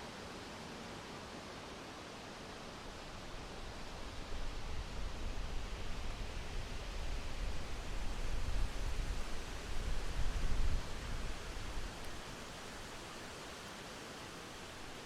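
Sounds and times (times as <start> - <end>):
wind blowing in gusts: 3.2 - 12.8.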